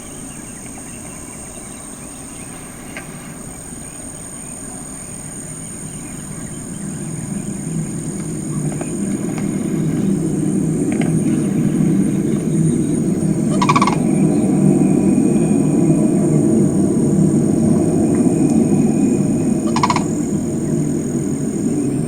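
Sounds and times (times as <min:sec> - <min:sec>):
high insect trill: 0:00.0 - 0:22.0
low droning rumble in sky: 0:00.0 - 0:22.0.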